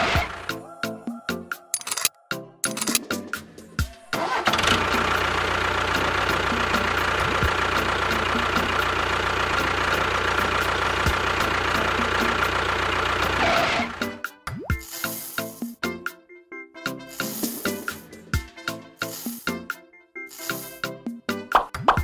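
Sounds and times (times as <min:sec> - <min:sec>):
engine humming: 0:00.0 - 0:01.0, 0:03.4 - 0:14.2.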